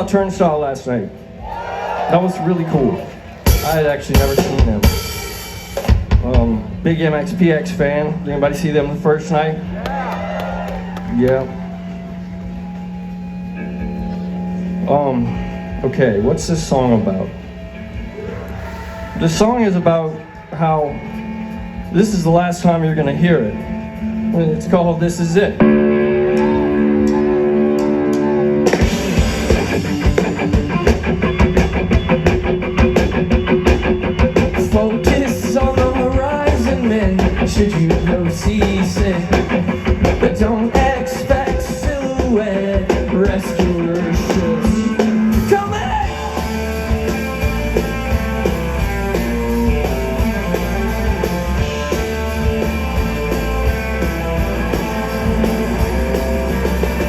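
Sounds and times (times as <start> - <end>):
bass guitar: 0.0 - 57.0
rock band playing: 0.0 - 57.0
distorted electric guitars: 2.1 - 57.0
drum kit: 3.5 - 6.8, 26.3 - 57.0.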